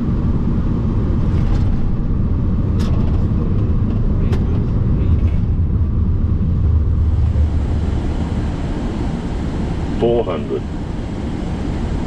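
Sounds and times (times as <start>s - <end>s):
airflow and engine rumble: 0.0s - 12.0s.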